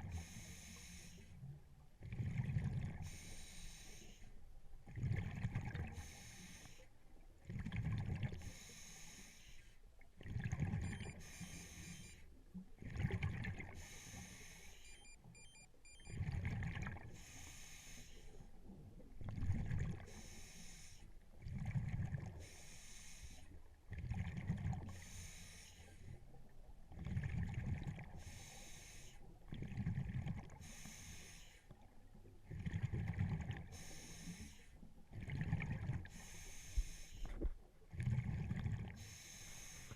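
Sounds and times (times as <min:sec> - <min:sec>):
exhaled bubbles rumbling: 0:02.0 - 0:03.0, 0:04.8 - 0:06.0, 0:07.4 - 0:08.4, 0:10.2 - 0:11.2, 0:12.7 - 0:13.8, 0:16.1 - 0:17.2, 0:18.8 - 0:20.1, 0:21.4 - 0:22.4, 0:23.9 - 0:24.9, 0:26.9 - 0:28.2, 0:29.5 - 0:30.6, 0:31.8 - 0:33.7, 0:35.0 - 0:36.1, 0:37.3 - 0:39.0.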